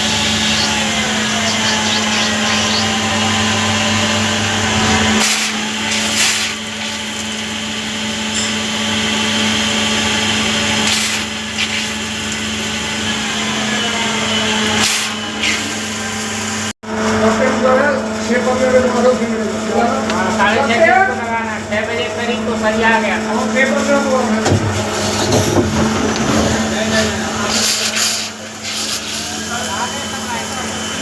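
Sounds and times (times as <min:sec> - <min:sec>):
machine tool motor hum: 0:00.0 - 0:16.7
noisy cutting bursts: 0:00.0 - 0:16.7, 0:17.7 - 0:31.0.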